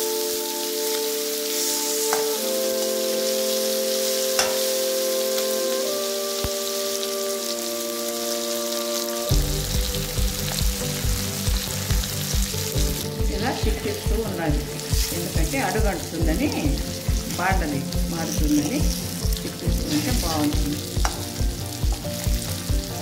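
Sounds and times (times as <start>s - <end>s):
background music with held chords: 0.0s - 23.0s
fish sizzling in oil: 0.0s - 23.0s
low music beat: 9.3s - 23.0s.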